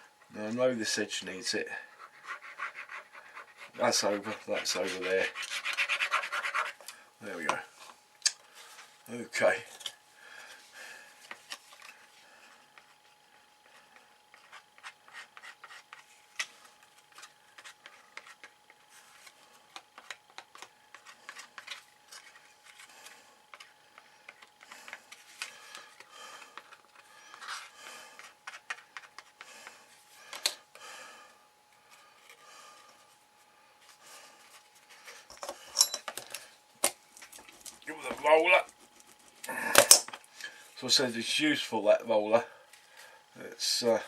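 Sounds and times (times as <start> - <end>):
card being rubbed by hand: 1.9 - 6.8.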